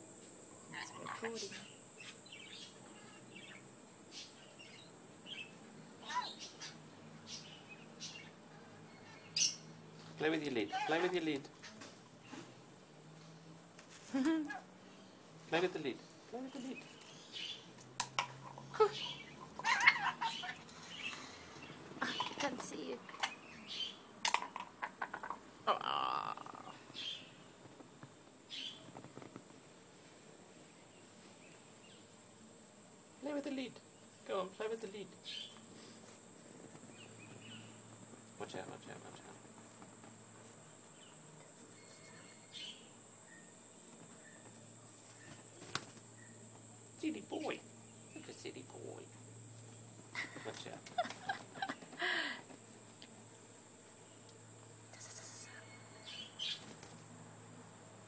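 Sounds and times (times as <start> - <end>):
lorikeet high calls: 0.7 - 9.7, 18.8 - 21.2
parrot chirps and squeaks: 9.0 - 9.6, 18.9 - 21.1.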